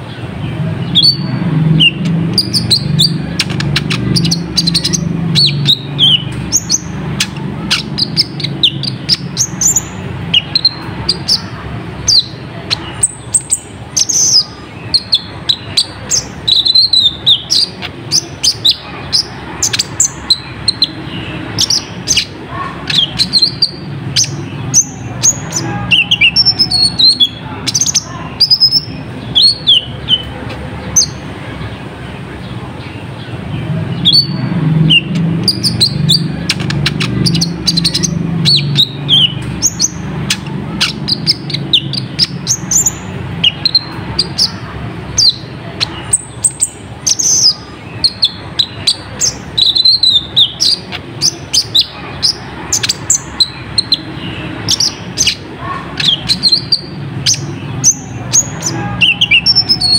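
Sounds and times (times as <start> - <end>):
bird chirping and ticking: 0.0 - 59.9.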